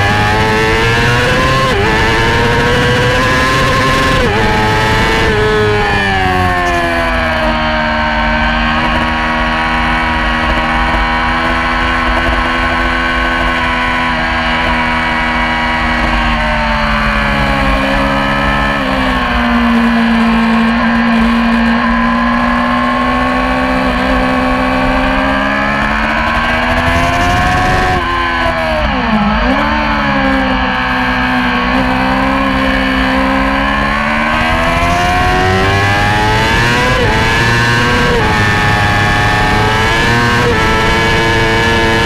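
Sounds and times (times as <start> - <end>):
motorcycle engine at high revs: 0.0 - 42.0.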